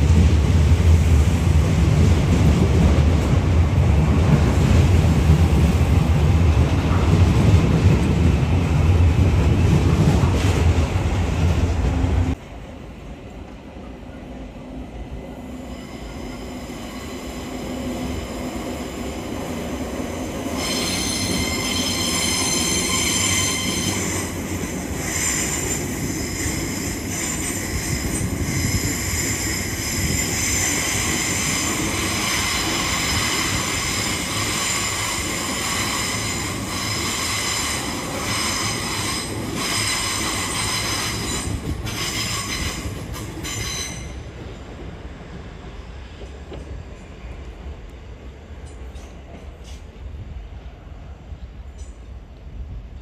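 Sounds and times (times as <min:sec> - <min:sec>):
train rumbling: 0:00.0 - 0:53.0
wheel squeal on rails: 0:20.6 - 0:24.4, 0:25.0 - 0:44.2.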